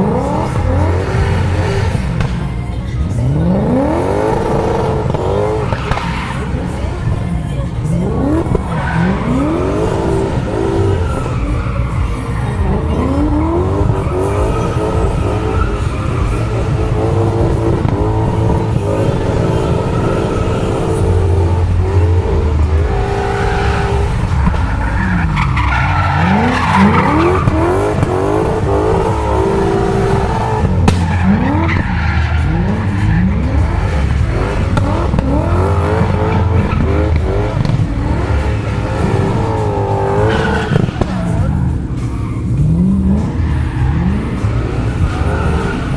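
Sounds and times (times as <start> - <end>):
car engine revving: 0.0 - 45.9
tyres squealing and skidding: 0.0 - 45.9.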